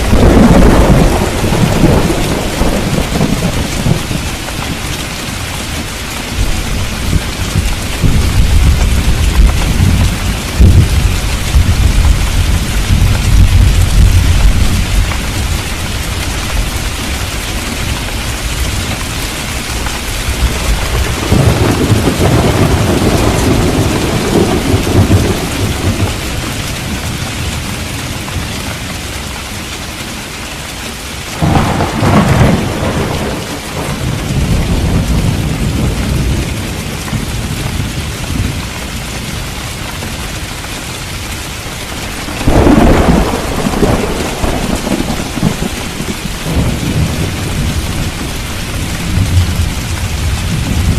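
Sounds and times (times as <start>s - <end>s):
thunder claps: 0.0s - 4.8s, 6.4s - 15.6s, 19.0s - 27.2s, 31.4s - 38.7s, 42.1s - 50.9s
thunder rumble: 0.0s - 27.6s, 31.4s - 38.7s, 41.8s - 50.9s
heavy rain: 0.0s - 50.9s.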